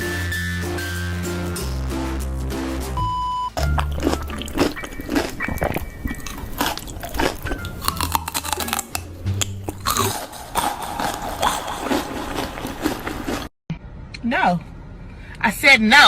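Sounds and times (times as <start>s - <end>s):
music playing: 0.0s - 12.6s
crunchy biting and chewing: 3.6s - 13.5s.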